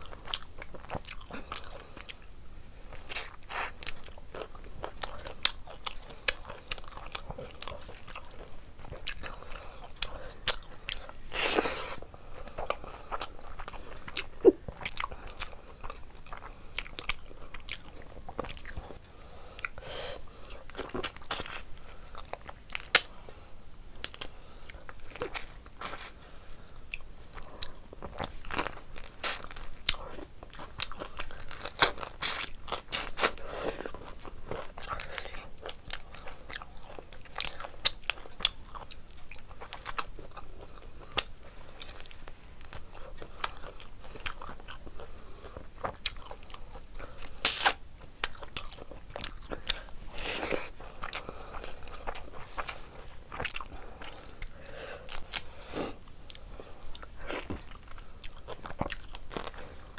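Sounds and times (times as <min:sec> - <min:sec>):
wet chewing and biting: 0:26.9 - 0:55.5, 0:56.3 - 0:59.7
mouth clicks and smacks: 0:47.4 - 0:50.5.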